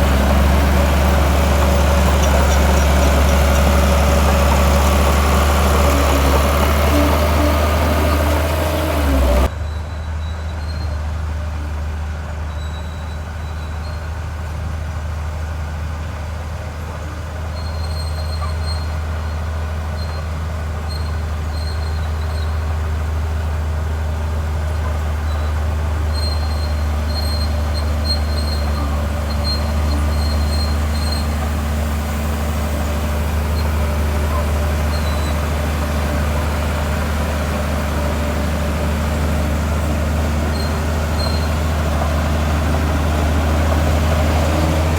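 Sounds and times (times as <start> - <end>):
heavy diesel engine droning: 0.0 - 44.9.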